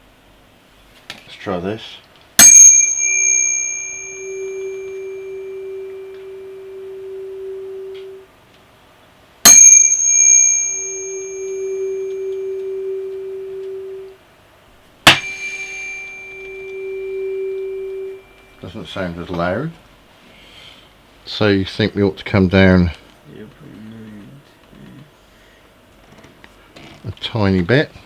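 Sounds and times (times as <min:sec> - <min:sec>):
tuning fork ringing: 0:02.4 - 0:08.3, 0:09.4 - 0:14.2, 0:15.1 - 0:18.9.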